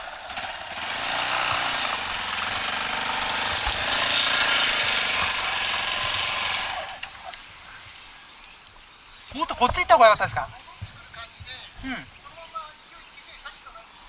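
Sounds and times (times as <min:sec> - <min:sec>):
dirt bike engine revving: 0:00.0 - 0:07.1.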